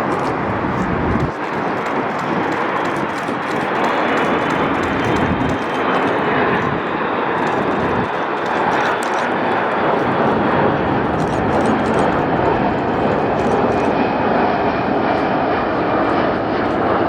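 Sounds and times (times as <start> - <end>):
airplane flying by: 9.4 - 17.0.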